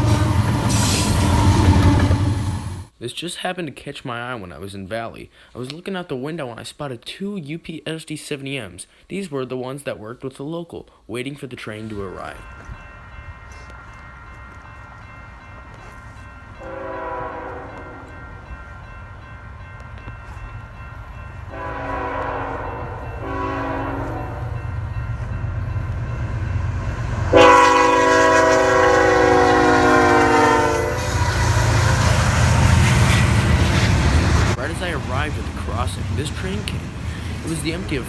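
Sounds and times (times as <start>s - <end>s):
train air horn blasts: 0.0s - 2.6s, 12.4s - 34.6s
train rumble: 0.0s - 2.9s, 11.8s - 38.0s.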